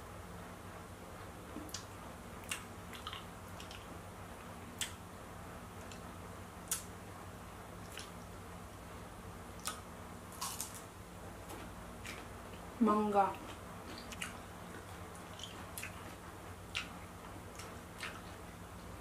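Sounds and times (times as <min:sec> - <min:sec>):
low steady hum: 0:00.0 - 0:19.0
wet mouth clicks and smacks: 0:04.8 - 0:05.0, 0:06.7 - 0:06.9, 0:07.8 - 0:08.2.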